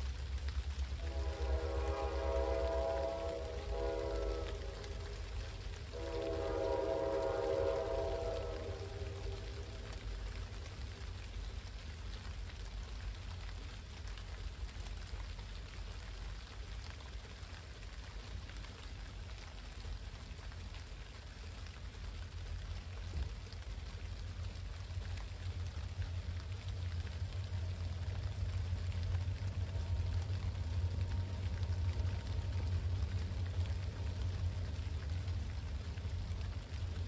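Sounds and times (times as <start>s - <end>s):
low rumble: 0.0s - 14.3s, 21.8s - 37.0s
steady rain falling: 0.0s - 37.0s.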